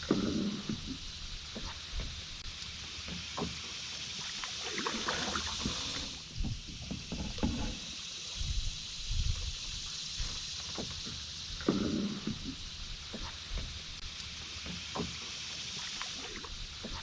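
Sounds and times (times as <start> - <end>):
paddle splashing water: 0.0 - 8.7, 9.6 - 17.0
steady high hiss: 0.0 - 17.0
knocks against canoe hull: 6.3 - 7.8.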